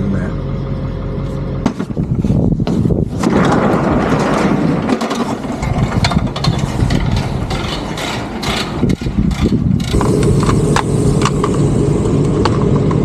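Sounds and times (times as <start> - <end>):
vent cleaning equipment rattling: 2.8 - 13.0.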